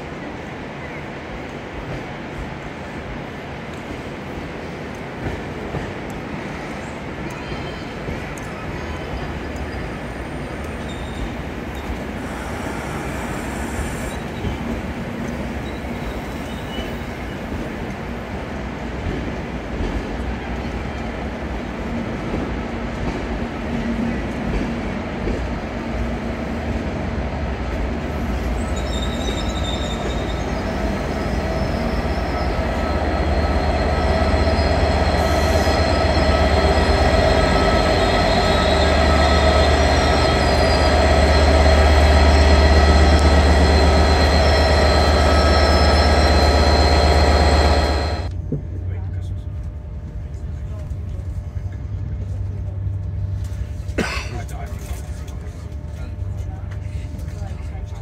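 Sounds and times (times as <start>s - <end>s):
train running rumble: 1.4s - 58.0s
metallic wheel squealing: 28.5s - 48.3s.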